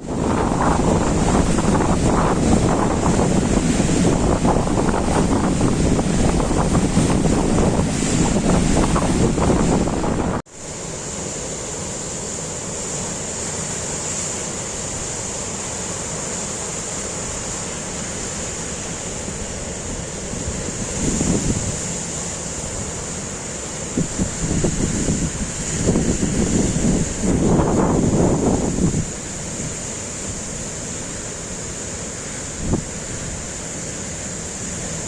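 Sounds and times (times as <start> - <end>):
wind buffeting microphone: 0.0 - 10.5, 20.3 - 21.9, 24.0 - 29.2
storm wind: 0.0 - 10.6, 16.8 - 33.6
waves surging: 0.0 - 35.0.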